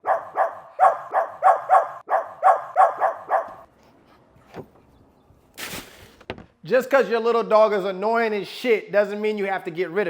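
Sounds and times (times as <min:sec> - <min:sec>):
small dog barking: 0:00.0 - 0:03.7.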